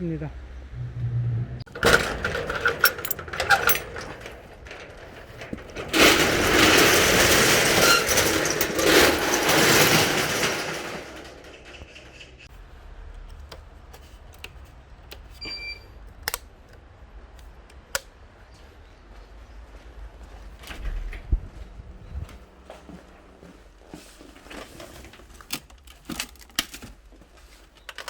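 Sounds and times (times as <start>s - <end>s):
metal door rattling: 1.7s - 12.5s, 20.6s - 22.3s.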